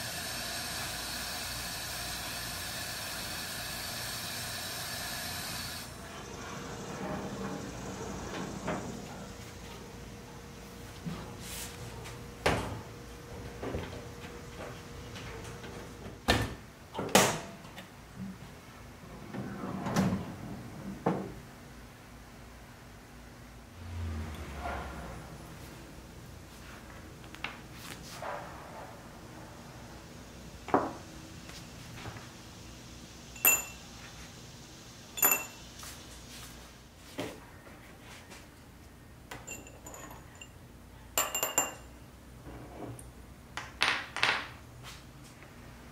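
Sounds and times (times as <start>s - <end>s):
metal rods clinking against glass: 33.4s - 33.8s, 35.2s - 35.6s, 39.4s - 40.6s, 41.2s - 41.9s.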